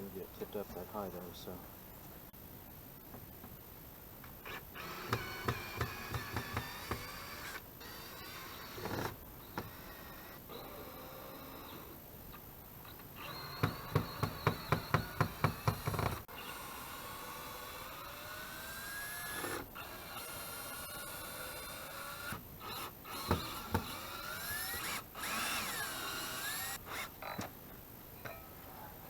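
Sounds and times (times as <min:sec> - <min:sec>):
power drill running: 0:04.4 - 0:12.0, 0:13.2 - 0:27.5.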